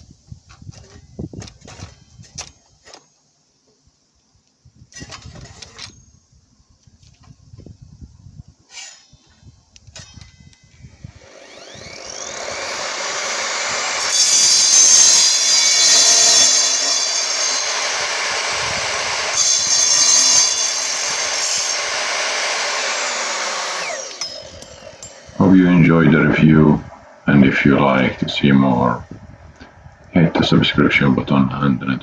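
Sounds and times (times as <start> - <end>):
saw blade cutting: 8.7 - 9.3, 10.9 - 28.2
saw motor whining: 10.0 - 29.8.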